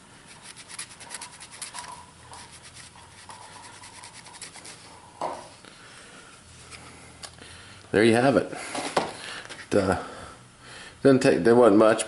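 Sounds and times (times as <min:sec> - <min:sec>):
rag scrubbing scratchy rubs: 0:00.3 - 0:05.0.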